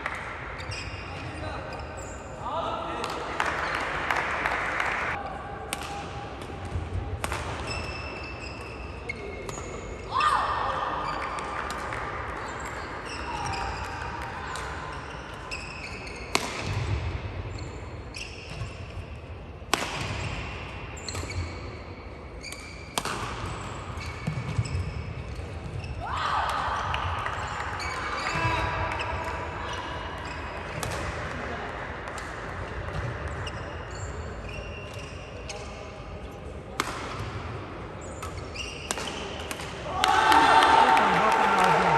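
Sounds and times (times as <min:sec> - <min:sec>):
shoes squeaking on court floor: 0:00.6 - 0:02.4, 0:07.6 - 0:10.1, 0:11.0 - 0:11.6, 0:12.4 - 0:16.9, 0:17.5 - 0:19.1, 0:21.0 - 0:26.0, 0:27.8 - 0:29.3, 0:30.2 - 0:30.9, 0:32.9 - 0:36.6, 0:38.0 - 0:39.6
racket striking shuttlecock: 0:05.7 - 0:07.9, 0:16.3 - 0:16.8, 0:19.7 - 0:20.3, 0:22.5 - 0:23.6, 0:36.8 - 0:37.4, 0:38.2 - 0:39.8.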